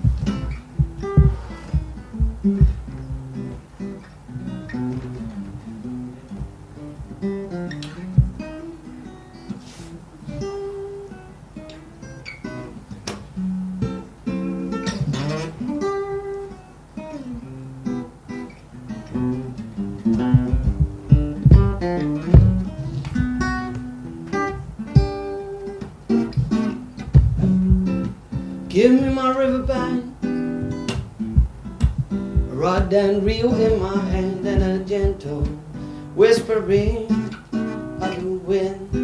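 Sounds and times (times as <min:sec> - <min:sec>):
acoustic guitar playing: 0:00.0 - 0:39.0.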